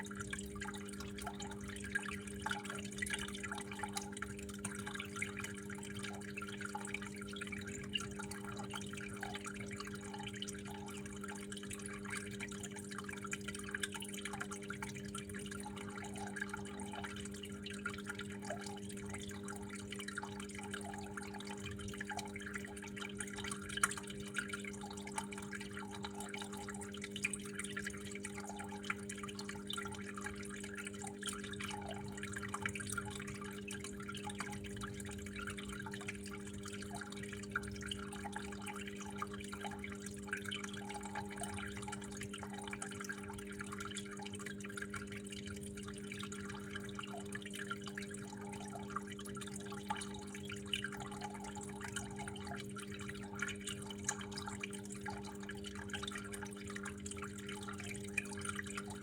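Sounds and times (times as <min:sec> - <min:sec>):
water trickling and dripping: 0:00.0 - 0:59.0.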